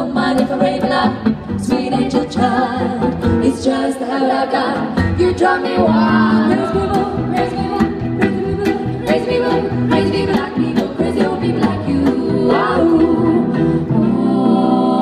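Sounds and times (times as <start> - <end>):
women singing in harmony: 0.0 - 15.0
swing band playing: 0.2 - 3.7, 4.8 - 13.8.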